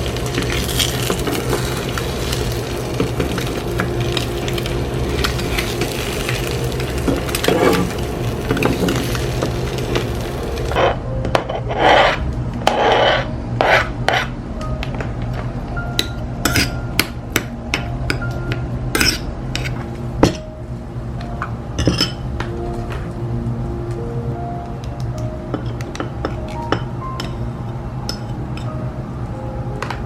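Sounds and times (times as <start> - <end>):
soft background music: 0.0 - 30.0
dishes and utensils clinking: 7.0 - 10.0, 15.9 - 17.1, 17.8 - 20.4, 21.4 - 22.3, 25.5 - 27.4
dishes scraping: 7.1 - 9.1, 10.7 - 14.4.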